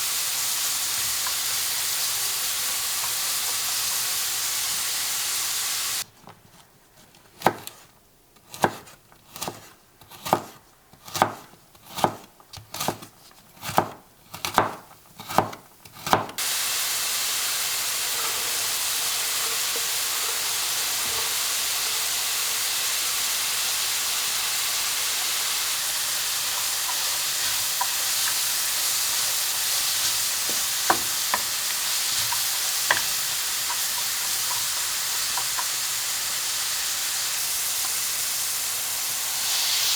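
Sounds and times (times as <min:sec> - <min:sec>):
food sizzling in oil: 0:00.0 - 0:06.0, 0:16.4 - 0:39.9.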